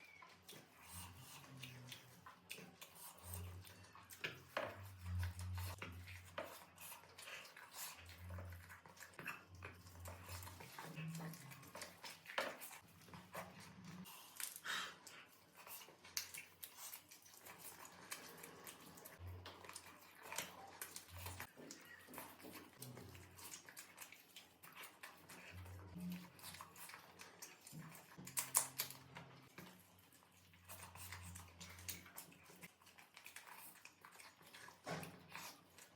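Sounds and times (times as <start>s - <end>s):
wet chewing and smacking: 0.0s - 35.9s.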